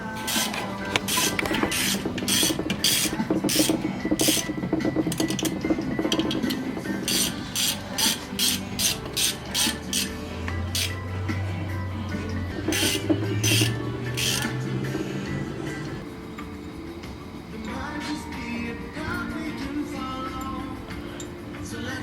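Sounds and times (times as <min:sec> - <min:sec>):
ratchet wrench clicking: 0:00.2 - 0:11.0, 0:12.5 - 0:14.7.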